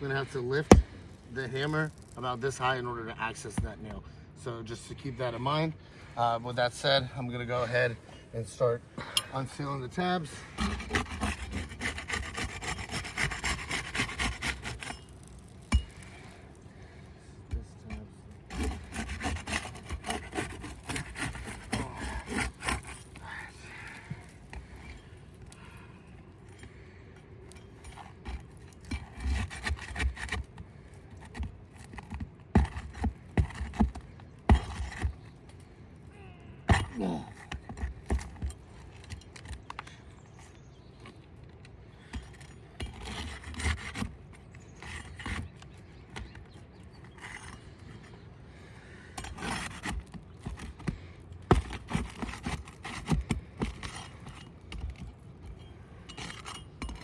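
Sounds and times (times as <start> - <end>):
tool prying roof shingles: 0.4 - 2.2, 10.4 - 16.9, 17.5 - 25.2, 27.6 - 35.4, 36.7 - 39.7, 42.0 - 48.1, 48.8 - 57.0.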